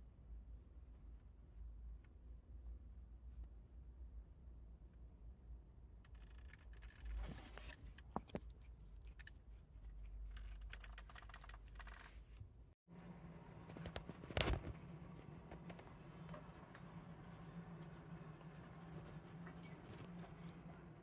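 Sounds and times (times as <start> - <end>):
small clicks and scratchy rustles: 6.0 - 12.6, 13.5 - 17.0.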